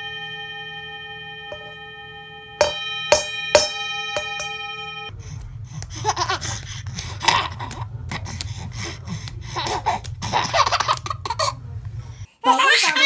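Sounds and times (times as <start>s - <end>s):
steady low hum: 0.0s - 12.3s
baby laughing: 6.0s - 8.4s, 9.4s - 11.6s, 12.4s - 13.0s.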